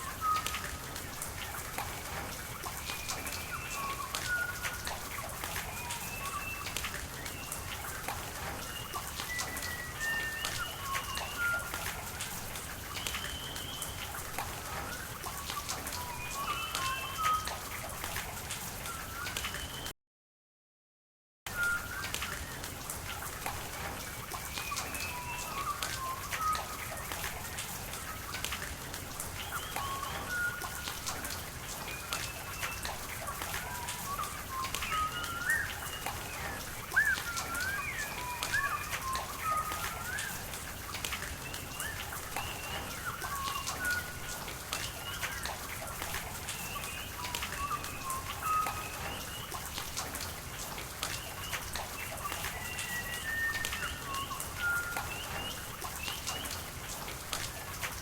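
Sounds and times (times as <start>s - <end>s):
rain falling: 0.0s - 19.9s, 21.5s - 58.0s
water drips: 0.0s - 19.9s, 21.5s - 58.0s
small birds chirping: 31.8s - 49.7s.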